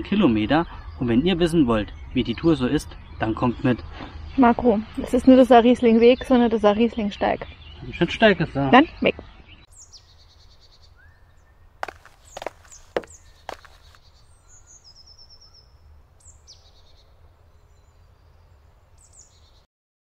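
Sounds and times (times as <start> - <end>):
birds chirping and trilling: 0.0 - 19.7.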